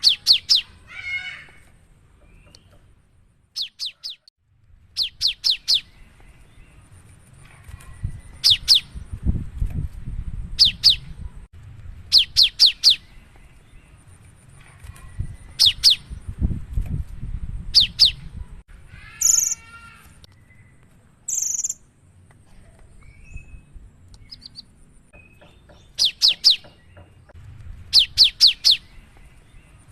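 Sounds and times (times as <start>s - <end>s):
buzzy bird call: 18.9s - 20.3s.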